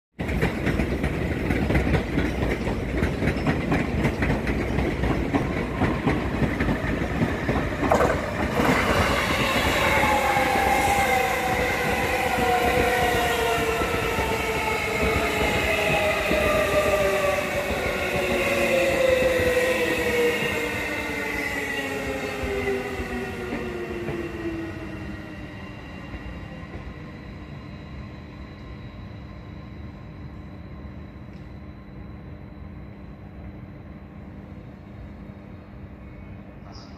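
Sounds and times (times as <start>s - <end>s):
train wheels rattling on rail: 0.2s - 27.2s.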